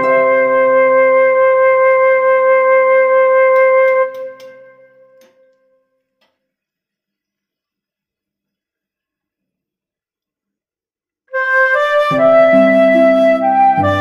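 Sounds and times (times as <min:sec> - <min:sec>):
held wind instrument note: 0:00.0 - 0:05.0, 0:11.4 - 0:14.0
soft musical accompaniment: 0:00.0 - 0:05.3, 0:11.4 - 0:14.0.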